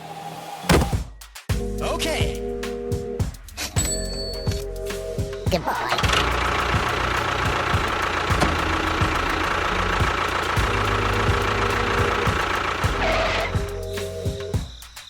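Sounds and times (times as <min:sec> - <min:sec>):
engine knocking: 0:05.6 - 0:13.8
engine running: 0:05.6 - 0:14.6.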